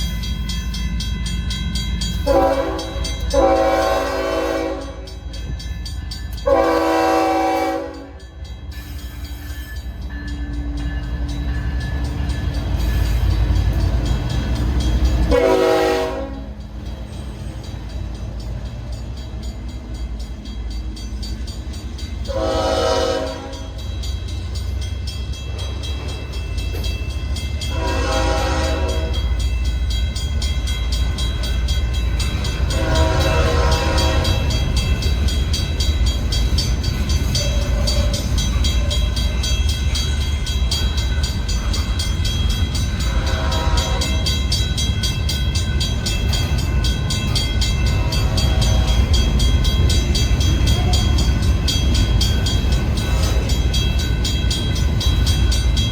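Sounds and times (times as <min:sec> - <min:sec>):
locomotive air horn blasts: 0:02.2 - 0:05.2, 0:06.4 - 0:08.2, 0:15.3 - 0:16.6, 0:22.3 - 0:23.8, 0:27.7 - 0:29.3, 0:32.7 - 0:34.5, 0:43.0 - 0:44.4, 0:48.1 - 0:49.1.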